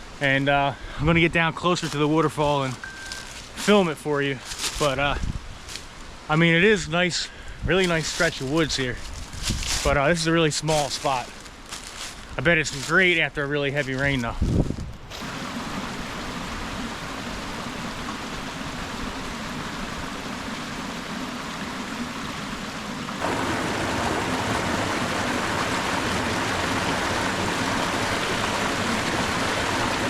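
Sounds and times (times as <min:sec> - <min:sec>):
water rushing over rocks: 0:15.1 - 0:30.0.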